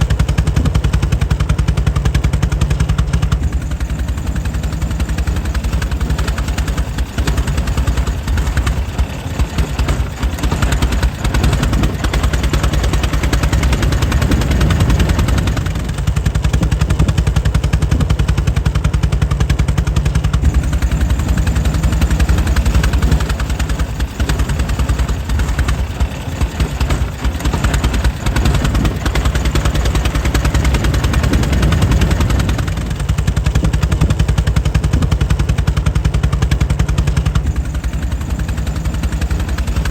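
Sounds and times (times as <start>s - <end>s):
engine firing beats: 0.0s - 39.9s.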